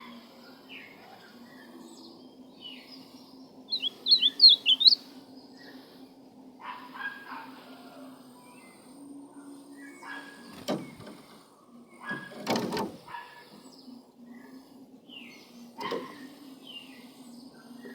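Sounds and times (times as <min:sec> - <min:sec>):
faint bird chirps: 0:00.0 - 0:06.0
bird singing whistled notes: 0:01.6 - 0:05.7.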